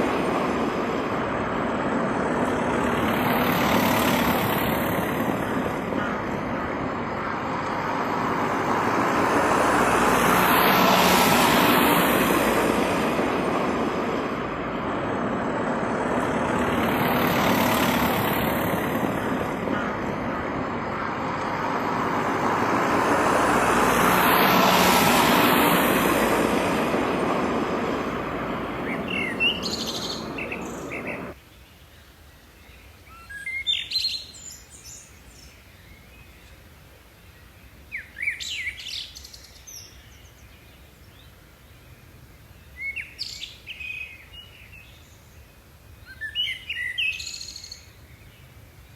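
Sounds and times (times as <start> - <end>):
loud rushing noise: 0.0 - 31.4.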